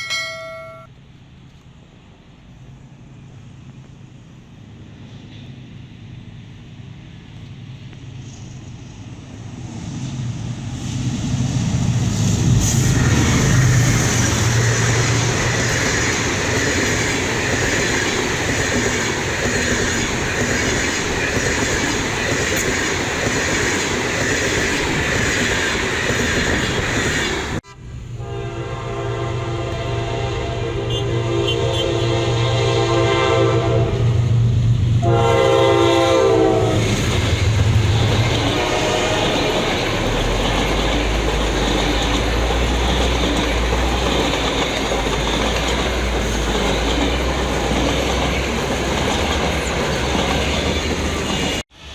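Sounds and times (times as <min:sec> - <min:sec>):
train rumble and wheel noise: 0:00.0 - 0:51.9
locomotive horn blast: 0:27.6 - 0:34.4, 0:35.0 - 0:37.0, 0:38.4 - 0:39.7.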